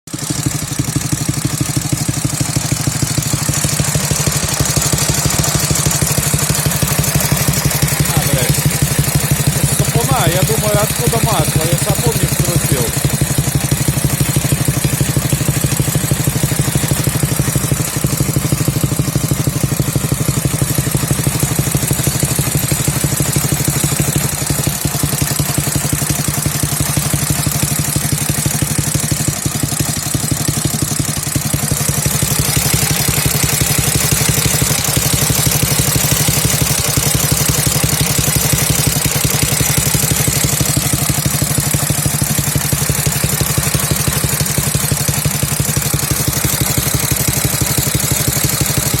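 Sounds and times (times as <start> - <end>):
motorcycle engine idling: 0.1 - 49.0.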